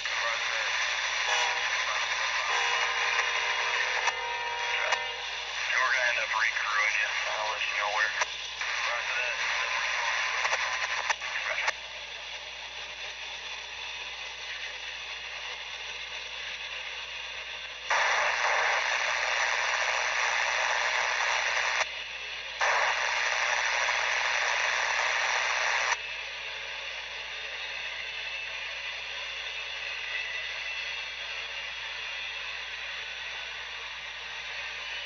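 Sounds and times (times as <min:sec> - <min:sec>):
loud bursts of static: 0:00.0 - 0:11.7, 0:17.9 - 0:21.8, 0:22.6 - 0:26.0
radio static hiss: 0:00.0 - 0:11.8, 0:17.9 - 0:21.9, 0:22.6 - 0:26.0.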